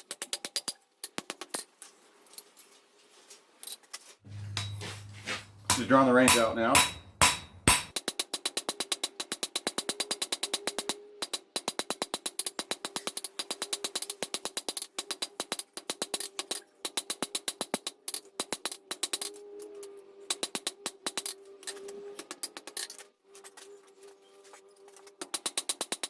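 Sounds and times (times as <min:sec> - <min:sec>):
hammer blows on steel anvil: 0:04.3 - 0:08.0.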